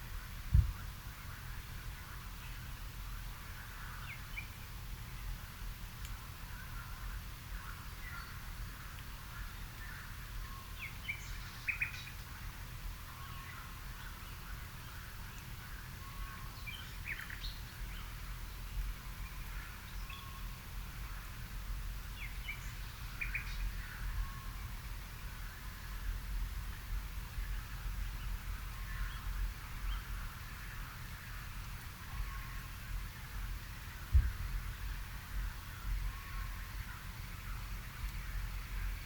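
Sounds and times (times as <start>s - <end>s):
steady low rumble: 0.0s - 3.4s, 13.7s - 39.0s
songbirds singing: 0.0s - 39.0s.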